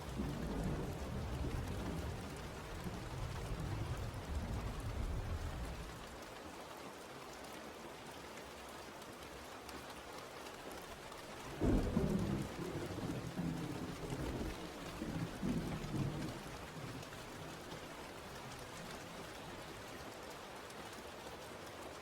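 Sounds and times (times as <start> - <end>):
steady rain falling: 0.0 - 22.0
rolling thunder: 11.5 - 17.5.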